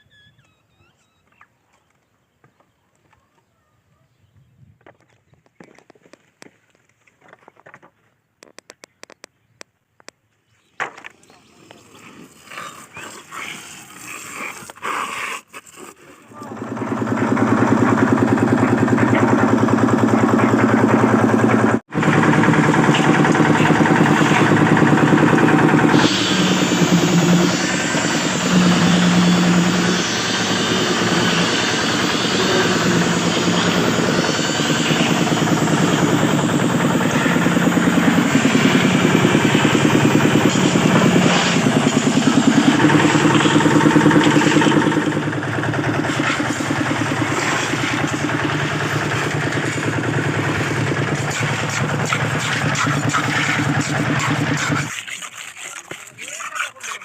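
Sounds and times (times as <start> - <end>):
machinery engine running: 16.3 - 55.0.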